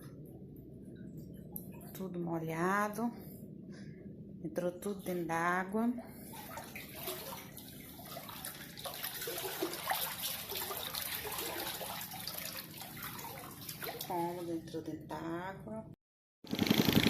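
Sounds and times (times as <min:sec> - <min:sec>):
floodwater running and trickling: 0:06.2 - 0:14.5.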